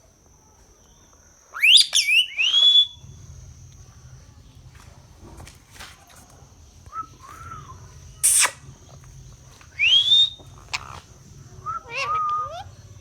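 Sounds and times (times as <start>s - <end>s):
parrot screeching: 1.6s - 2.4s, 9.8s - 11.0s, 11.6s - 12.7s
parrot whistling: 1.6s - 3.0s, 9.7s - 11.0s, 11.6s - 12.8s.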